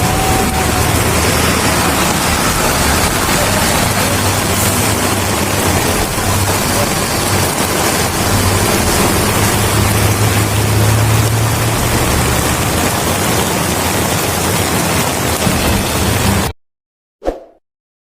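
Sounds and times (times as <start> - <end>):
low rumble: 0.0 - 13.2
heavy rain pouring: 0.0 - 16.6.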